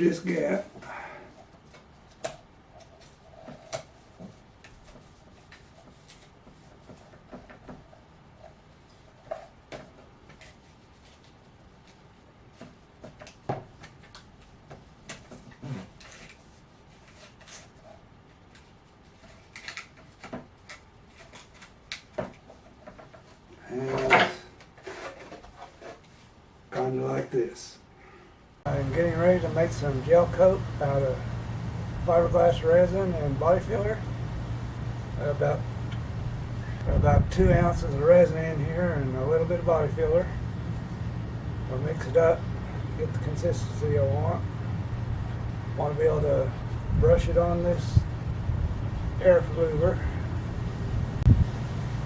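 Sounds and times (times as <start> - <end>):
tape taps and crinkles: 12.6 - 16.4.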